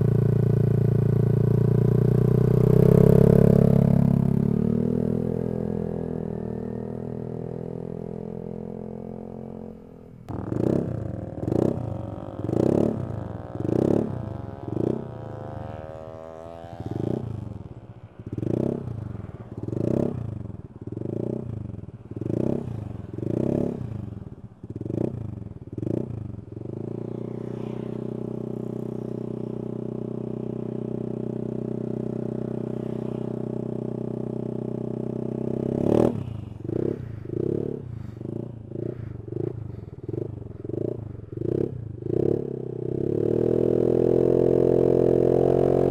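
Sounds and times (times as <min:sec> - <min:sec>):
scooter engine revving: 0:10.3 - 0:17.6, 0:34.9 - 0:45.9.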